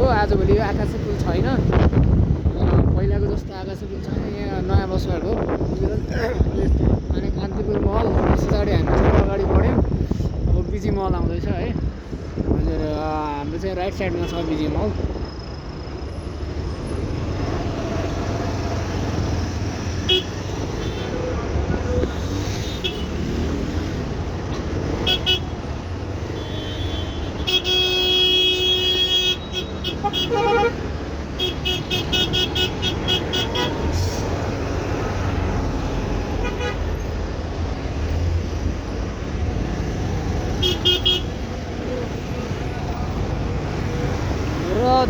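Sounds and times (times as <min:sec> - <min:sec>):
road traffic rumble: 0:00.0 - 0:45.0
vehicle horns honking: 0:20.0 - 0:21.2, 0:22.6 - 0:23.5, 0:24.9 - 0:34.2, 0:36.4 - 0:37.1, 0:40.5 - 0:41.5.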